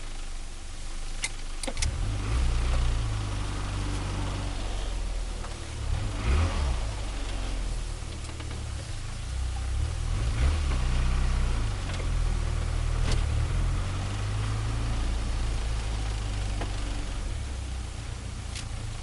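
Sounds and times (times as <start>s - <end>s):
car engine revving: 1.1s - 19.0s.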